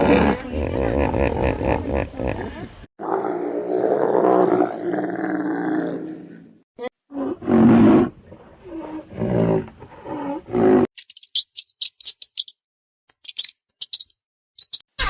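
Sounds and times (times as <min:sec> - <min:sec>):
animal roaring and growling: 0:00.0 - 0:10.9
high raspy clicks and chirps: 0:11.0 - 0:14.9.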